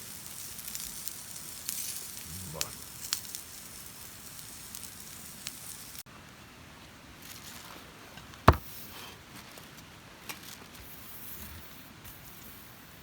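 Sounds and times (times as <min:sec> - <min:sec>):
food sizzling: 0:00.0 - 0:06.1
campfire crackling: 0:00.0 - 0:09.0.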